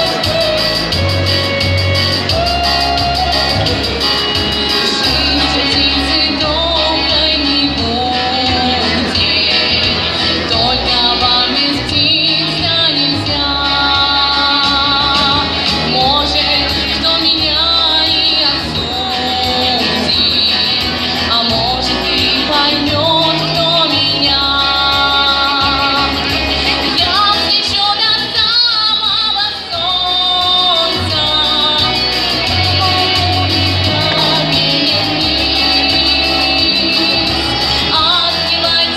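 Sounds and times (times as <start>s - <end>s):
instrumental accompaniment with bass: 0.0s - 38.9s
woman singing pop song: 0.0s - 38.9s.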